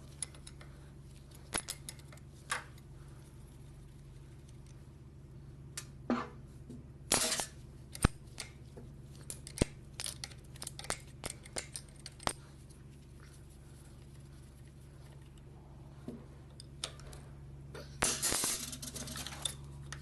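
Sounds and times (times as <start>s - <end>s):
metallic clicks and clinks: 0.0s - 0.7s, 9.2s - 12.4s
metal tools scraping rattle: 18.0s - 19.7s.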